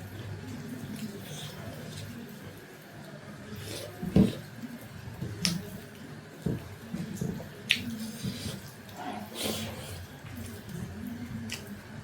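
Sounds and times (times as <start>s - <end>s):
person chewing: 7.6s - 10.8s.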